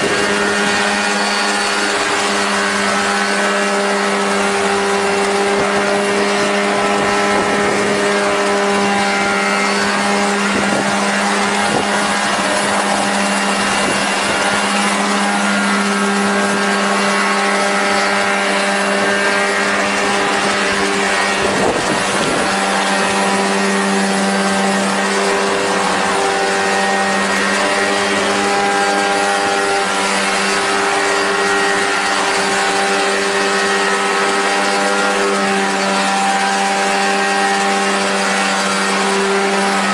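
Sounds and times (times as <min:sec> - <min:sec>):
light aircraft engine and propeller: 0:00.0 - 0:39.9.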